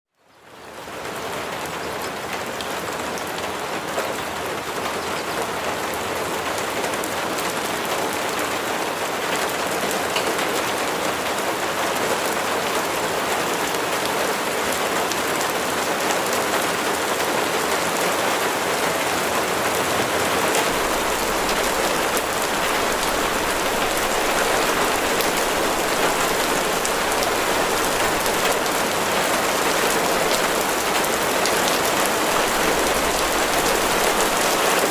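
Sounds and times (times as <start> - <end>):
steady rain falling: 0.1 - 34.9
ticks of single raindrops: 19.7 - 34.9.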